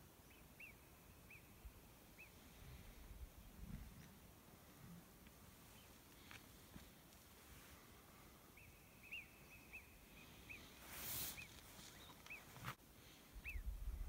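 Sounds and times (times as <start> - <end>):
small bird chirping: 0.2 - 2.4, 8.6 - 12.8, 13.4 - 13.7
wind rumbling on microphone: 2.6 - 4.9, 13.4 - 14.0
brief hiss: 10.8 - 11.8.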